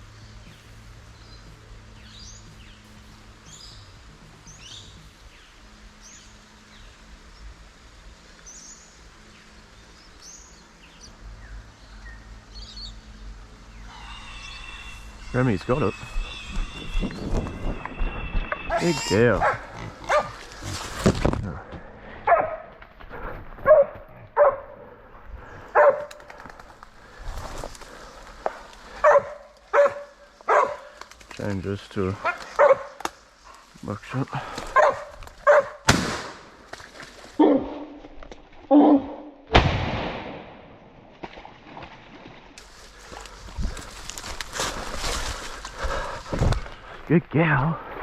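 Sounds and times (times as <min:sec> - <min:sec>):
dog barking: 0:19.4 - 0:20.4, 0:22.2 - 0:22.7, 0:23.6 - 0:24.8, 0:25.7 - 0:26.1, 0:29.0 - 0:30.9, 0:32.2 - 0:33.0, 0:34.7 - 0:35.8, 0:37.4 - 0:37.8
shotgun blast with echo: 0:35.9 - 0:36.4, 0:39.5 - 0:40.7.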